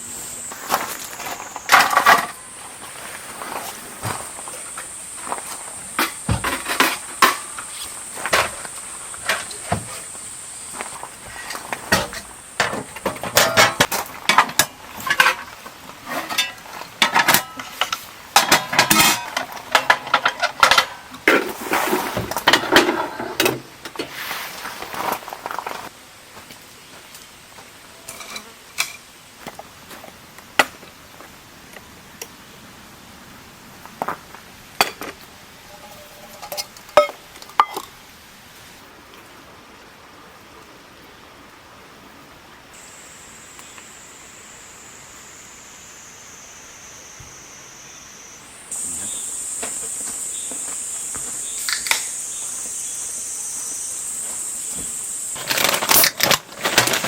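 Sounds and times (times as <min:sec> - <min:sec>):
dishes and cutlery clinking: 0:35.7 - 0:37.9.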